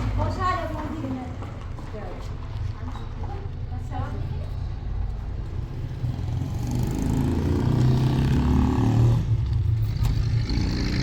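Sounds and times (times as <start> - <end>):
vehicle engine revving: 6.0 - 11.0.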